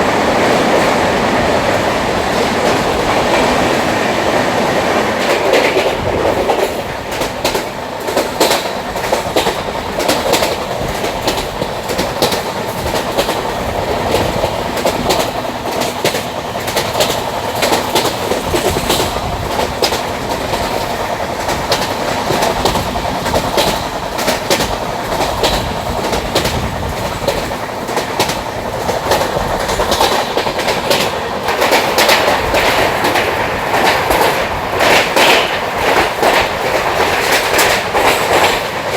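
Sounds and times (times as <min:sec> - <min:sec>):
train rumbling over rails: 0:00.0 - 0:38.9
wheels clacking over rail joints: 0:00.0 - 0:38.9.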